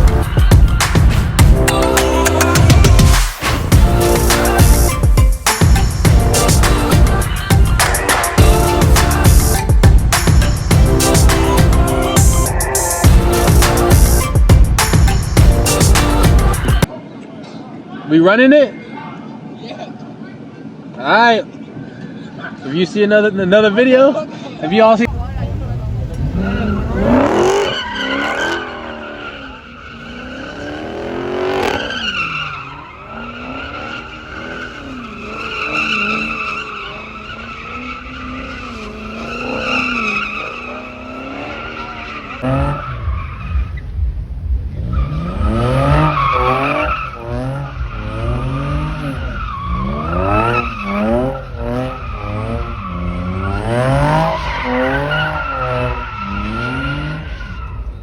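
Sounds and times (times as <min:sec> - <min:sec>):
car engine revving: 0:00.0 - 0:16.9, 0:25.0 - 0:58.0
tires squealing: 0:25.0 - 0:58.0.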